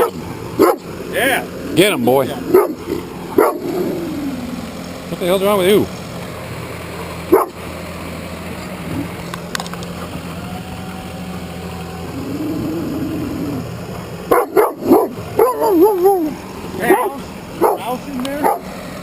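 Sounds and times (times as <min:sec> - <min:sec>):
dog barking: 0:00.0 - 0:00.8, 0:02.5 - 0:02.8, 0:03.4 - 0:03.6, 0:07.3 - 0:07.6, 0:14.3 - 0:16.2, 0:16.9 - 0:18.7
low machine hum: 0:00.0 - 0:19.0.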